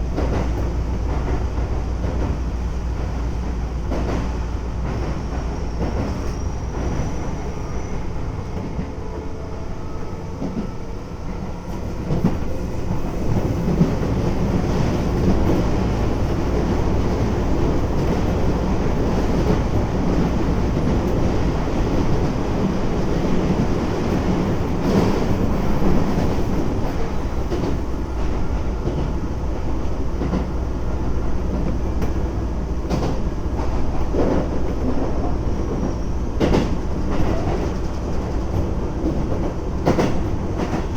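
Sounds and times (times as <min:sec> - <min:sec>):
train wheels and motors rumbling: 0:00.0 - 0:40.9
rail-joint clacks: 0:11.4 - 0:29.3, 0:30.1 - 0:30.6, 0:31.4 - 0:40.9.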